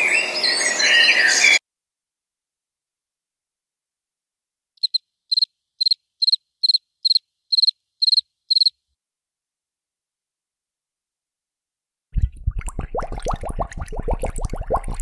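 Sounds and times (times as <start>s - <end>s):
cricket chirping: 4.8s - 8.8s.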